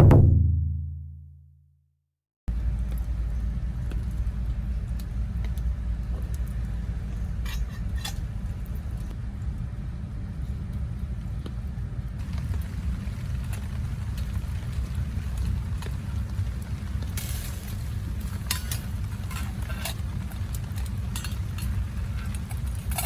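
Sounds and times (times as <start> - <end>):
deep drum-like musical hit: 0.0 - 1.2
steady low rumble: 2.5 - 23.0.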